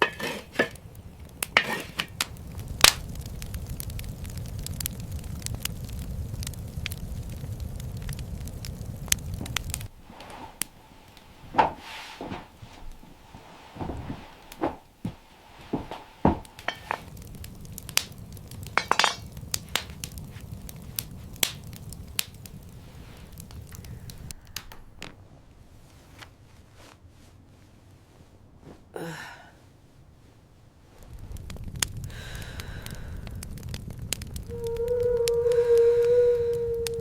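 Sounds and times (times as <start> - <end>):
low rumbling noise: 0.0 - 25.8, 30.9 - 37.0
sharp knocks and clinks: 16.3 - 17.1.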